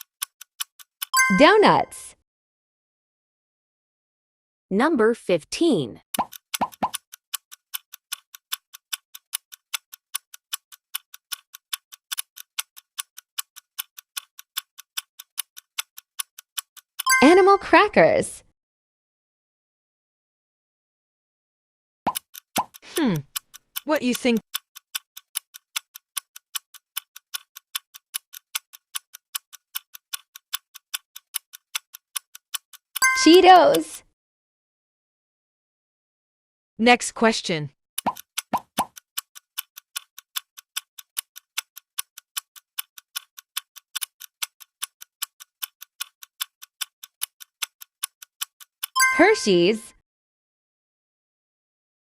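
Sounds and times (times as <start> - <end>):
quick clock ticks: 0.0 - 1.7, 6.0 - 17.2, 22.1 - 34.0, 38.0 - 49.2.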